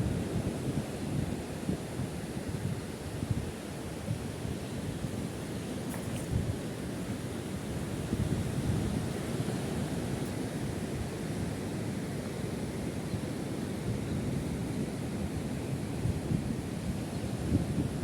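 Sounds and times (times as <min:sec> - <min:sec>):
wind buffeting microphone: 0:02.5 - 0:11.6.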